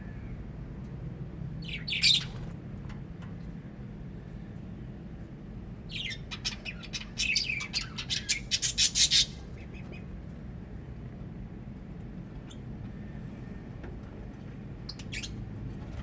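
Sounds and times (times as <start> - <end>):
parrots squawking: 6.0 - 10.0.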